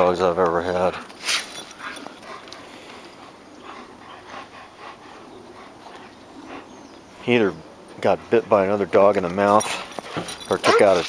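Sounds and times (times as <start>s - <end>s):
dog panting: 0.6s - 8.9s.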